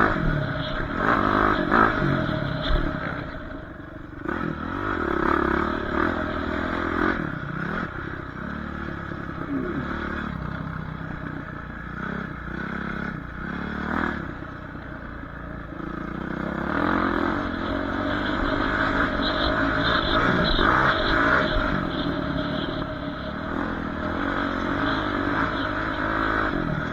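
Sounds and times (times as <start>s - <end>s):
dirt bike engine revving: 0.0s - 26.9s.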